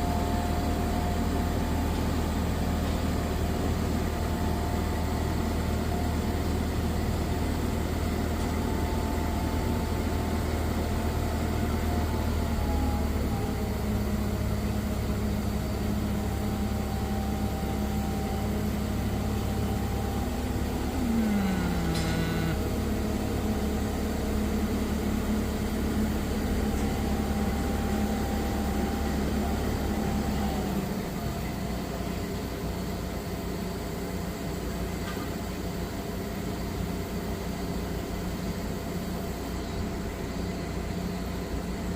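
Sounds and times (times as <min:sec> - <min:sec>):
diesel engine running: 0:00.0 - 0:34.8
short falling whine: 0:20.4 - 0:22.9.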